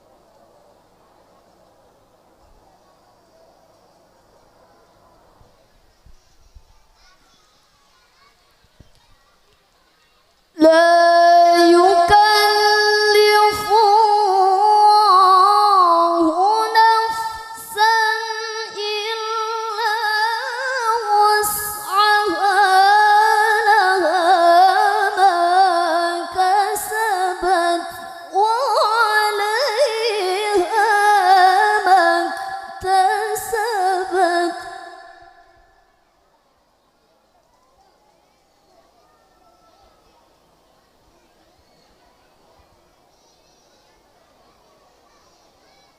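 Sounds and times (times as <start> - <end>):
woman reciting melodically: 10.6 - 35.7.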